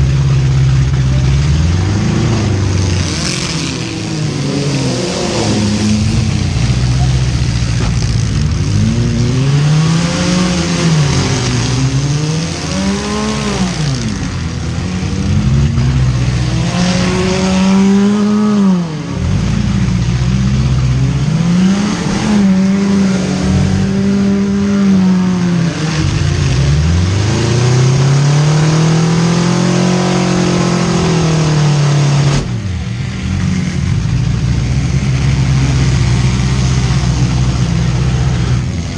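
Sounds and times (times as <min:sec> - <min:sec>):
car engines revving hard: 0:00.0 - 0:38.9.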